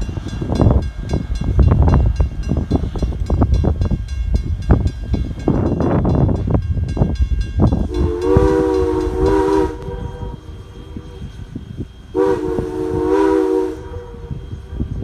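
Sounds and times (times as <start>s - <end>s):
wind buffeting microphone: 0.0s - 15.0s
steam locomotive whistle: 7.7s - 15.0s.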